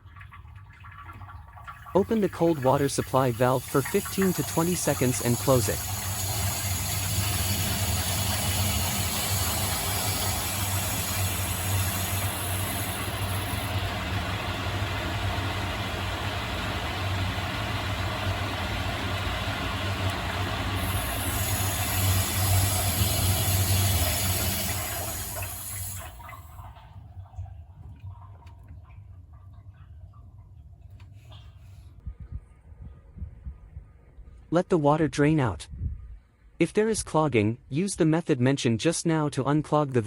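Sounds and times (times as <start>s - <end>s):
water rushing through pipes: 0.0s - 30.6s.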